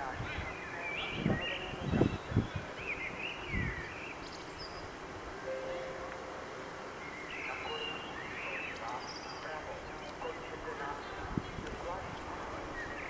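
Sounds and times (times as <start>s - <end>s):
small birds chirping: 0.0s - 13.0s
faint steady tone: 4.1s - 11.2s.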